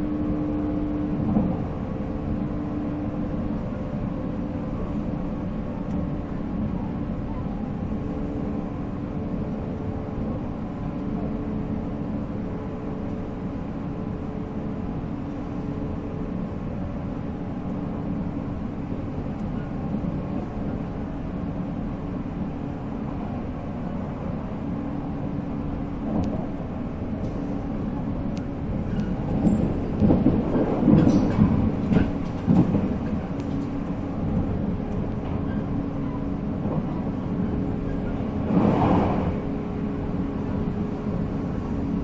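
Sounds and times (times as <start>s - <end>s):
wheels rumbling on rail: 0.0s - 42.0s
train clattering: 25.3s - 42.0s.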